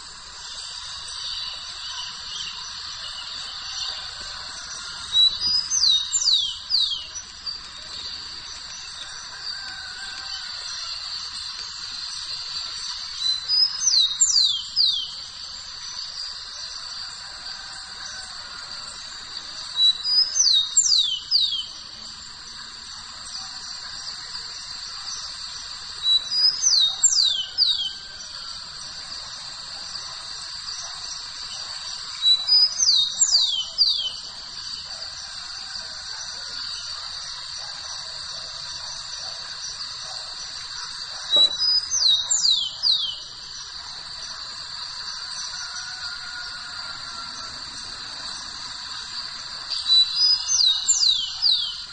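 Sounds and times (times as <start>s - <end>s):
high-pitched hiss: 0.0s - 51.9s
songbird whistling: 0.5s - 7.6s.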